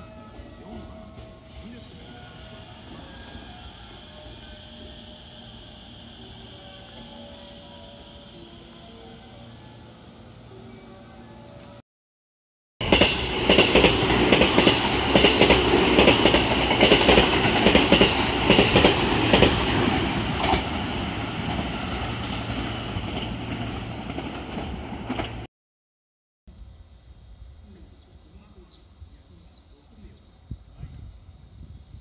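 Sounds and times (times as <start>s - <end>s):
train wheels clacking over rail joints: 12.8s - 19.6s.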